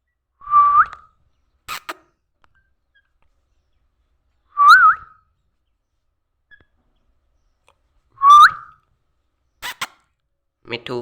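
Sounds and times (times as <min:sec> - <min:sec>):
parrot whistling: 0:01.7 - 0:02.0, 0:04.6 - 0:05.1, 0:08.2 - 0:08.8, 0:09.6 - 0:10.0.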